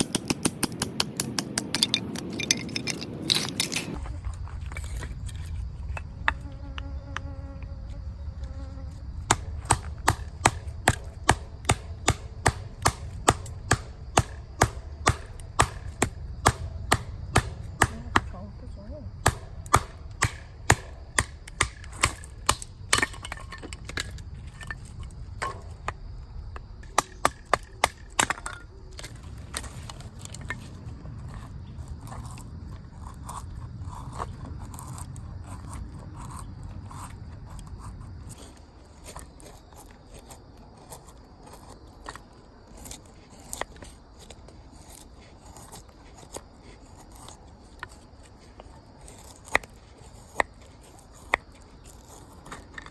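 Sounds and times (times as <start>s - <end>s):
sharp knocks: 9.2s - 18.3s, 19.2s - 23.4s.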